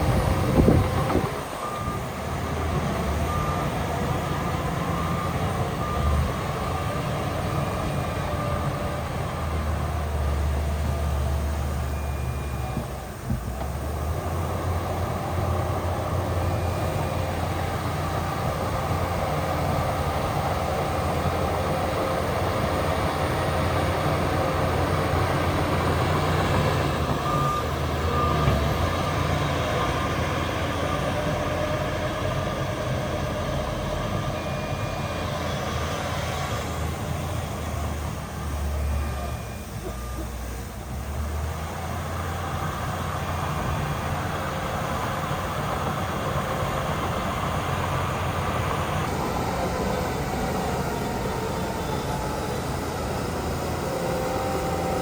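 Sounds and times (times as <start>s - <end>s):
heavy diesel machinery rumbling: 0.0s - 55.0s.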